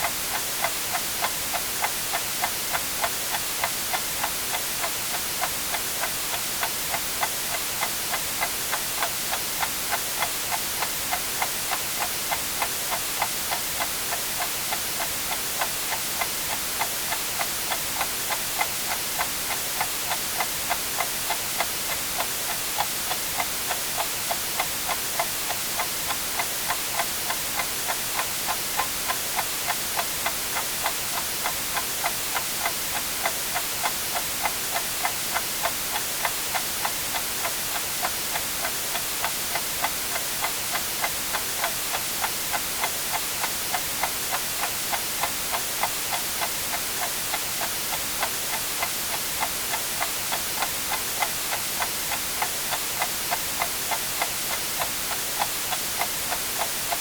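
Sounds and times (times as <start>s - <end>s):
clock ticking: 0.0s - 57.0s
white noise hiss: 0.0s - 57.0s.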